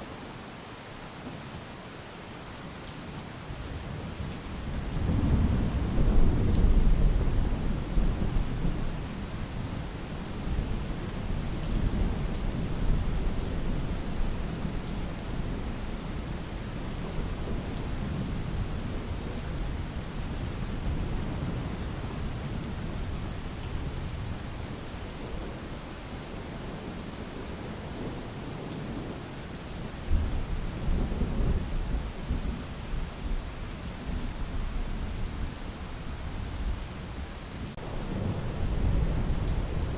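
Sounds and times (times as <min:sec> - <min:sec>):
steady rain falling: 0:00.0 - 0:39.9
thunder rumbling: 0:37.8 - 0:39.9.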